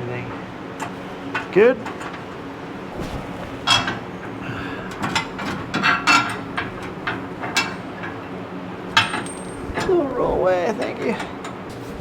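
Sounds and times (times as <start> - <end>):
metal tools clinking: 8.9 - 11.8.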